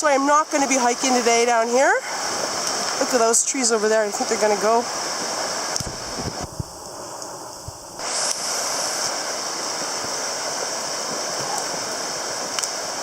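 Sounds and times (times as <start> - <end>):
flooded river rushing: 8.0 - 13.0.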